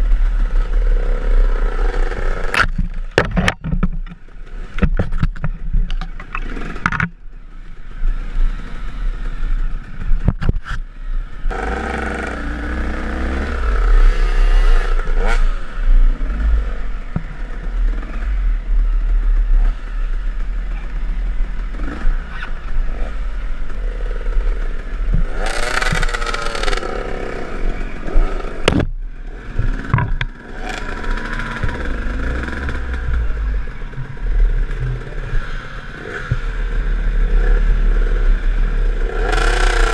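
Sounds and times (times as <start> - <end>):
knocks and rattles: 2.5 - 7.2, 28.6 - 32.0
dirt bike engine revving: 10.9 - 39.9.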